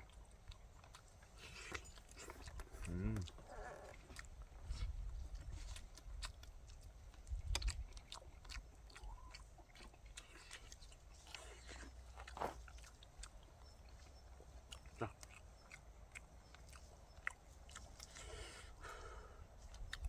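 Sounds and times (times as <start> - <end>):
close chewing: 0.0 - 20.0
mouth clicks and smacks: 0.1 - 14.0, 19.7 - 20.0.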